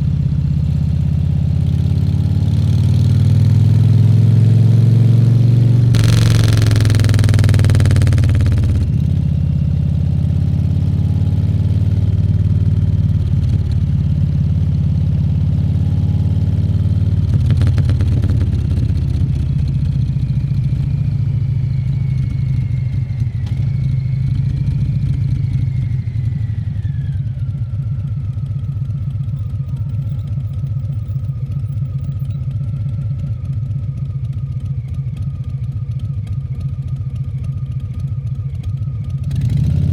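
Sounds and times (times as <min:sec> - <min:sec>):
motorcycle engine running: 0:00.1 - 0:23.0
loud rushing noise: 0:06.0 - 0:08.9.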